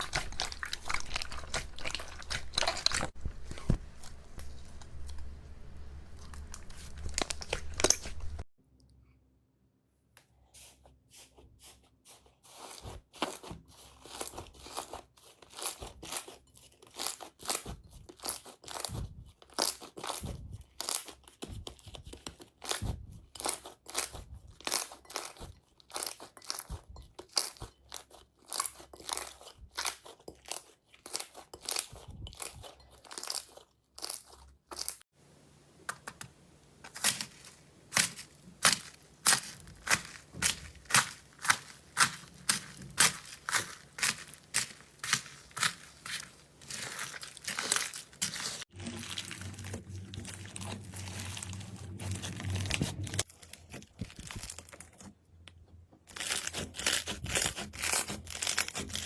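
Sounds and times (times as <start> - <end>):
slime crackling and popping: 36.9 - 51.6.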